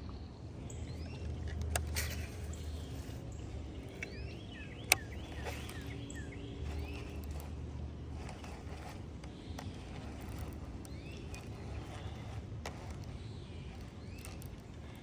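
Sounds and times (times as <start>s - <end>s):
birds chirping: 0.0s - 15.0s
sharp click: 4.8s - 6.0s.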